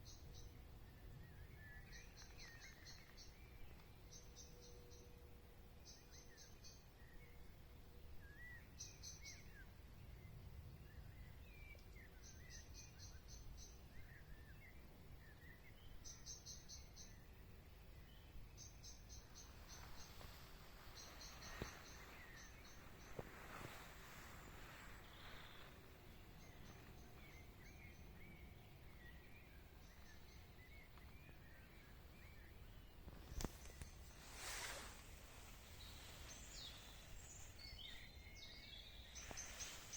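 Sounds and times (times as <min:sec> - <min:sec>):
birds chirping: 0:00.0 - 0:05.1, 0:10.9 - 0:39.9
whistled bird calls: 0:18.8 - 0:32.6.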